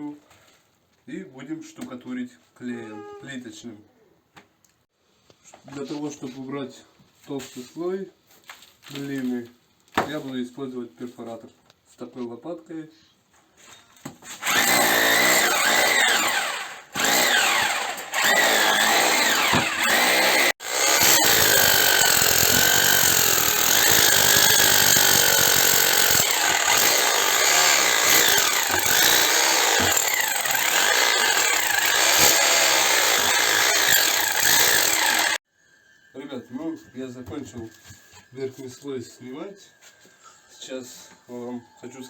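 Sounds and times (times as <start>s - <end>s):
rotary hammer chipping plaster: 18.4s - 35.4s.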